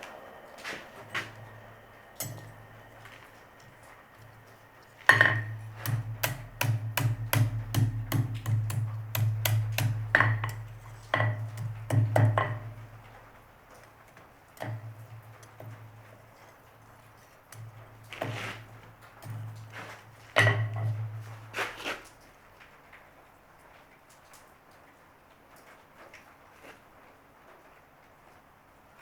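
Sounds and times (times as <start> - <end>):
hammer striking metal on anvil: 0.0 - 13.1
steady low hum: 0.0 - 13.8.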